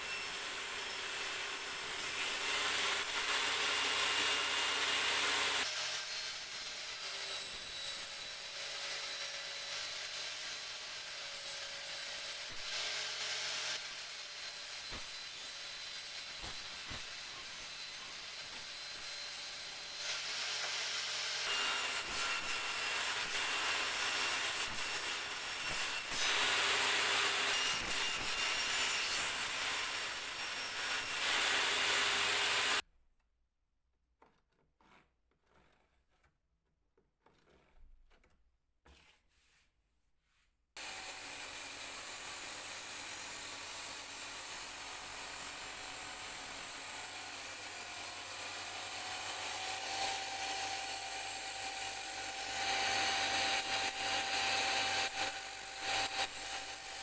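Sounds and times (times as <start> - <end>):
tool rasping wood: 34.2 - 36.4, 37.2 - 39.7.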